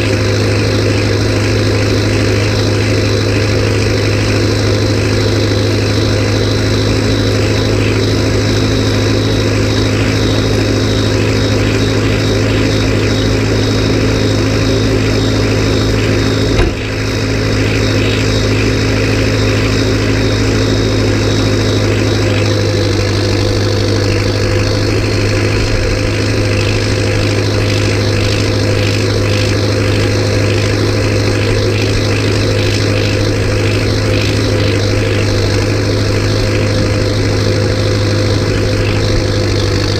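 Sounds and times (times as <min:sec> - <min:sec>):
tractor diesel engine droning: 0:00.0 - 0:39.9
brief knock: 0:16.6 - 0:16.9.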